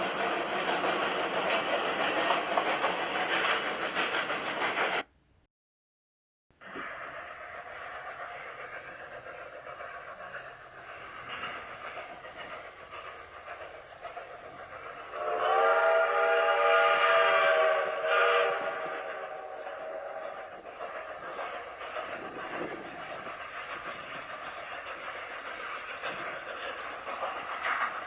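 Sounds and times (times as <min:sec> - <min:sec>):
locomotive whistle blasts: 0:15.2 - 0:20.4.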